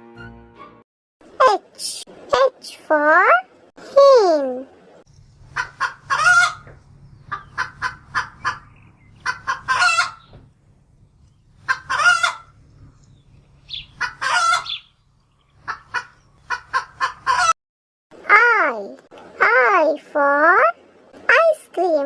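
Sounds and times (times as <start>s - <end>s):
hen cackling: 5.5s - 6.7s, 7.3s - 10.3s, 11.6s - 12.5s, 13.7s - 14.9s, 15.6s - 17.6s.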